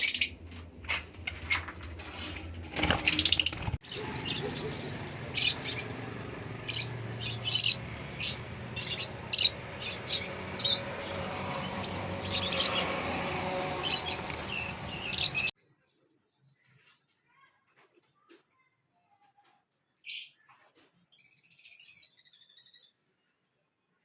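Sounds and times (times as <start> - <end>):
birds chirping: 0.0 - 2.0, 2.7 - 15.5.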